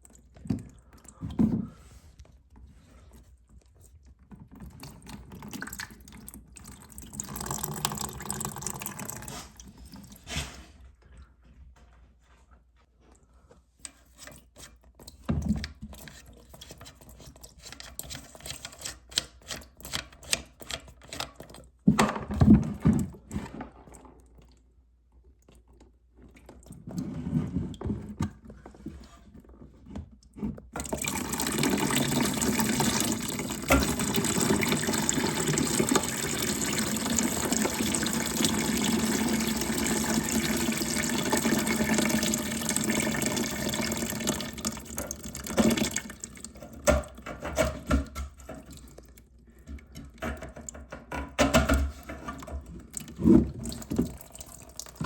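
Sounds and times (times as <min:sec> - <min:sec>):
water rushing into toilet tank: 0:04.6 - 0:10.6, 0:30.8 - 0:49.0, 0:51.6 - 0:55.0.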